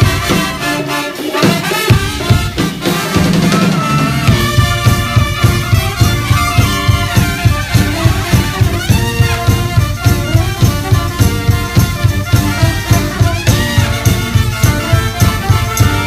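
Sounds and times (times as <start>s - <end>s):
saxophone: 0.0s - 16.0s
steady drum beat: 0.0s - 16.0s
trombones: 0.0s - 16.0s
trumpets: 0.0s - 16.0s.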